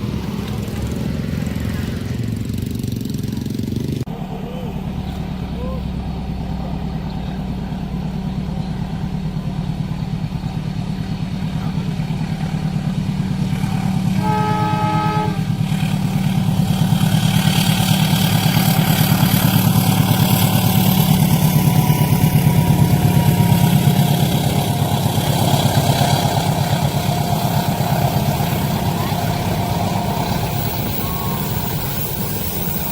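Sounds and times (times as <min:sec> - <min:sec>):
diesel locomotive engine throb: 0:00.0 - 0:32.9
train wheels on rails: 0:00.0 - 0:32.9
wheels squealing: 0:11.0 - 0:32.9
train horn: 0:14.0 - 0:16.0, 0:22.3 - 0:32.9.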